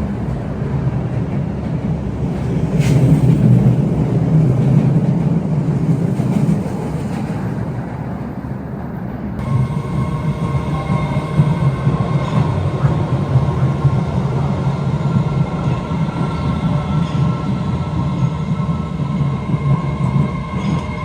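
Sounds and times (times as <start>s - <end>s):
subway train rumbling: 0.0s - 21.0s.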